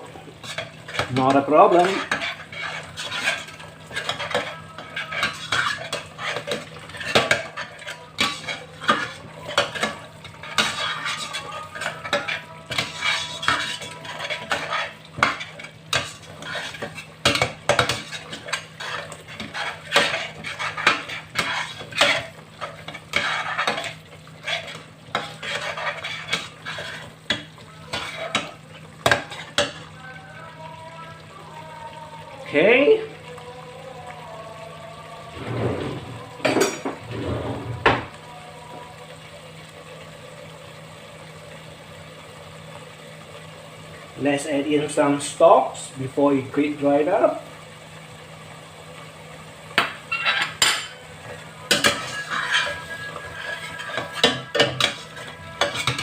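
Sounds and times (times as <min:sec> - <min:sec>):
utensil scraping in a pot: 0:00.0 - 0:29.9, 0:35.3 - 0:38.2, 0:50.0 - 0:56.0
spices sizzling: 0:00.0 - 0:56.0.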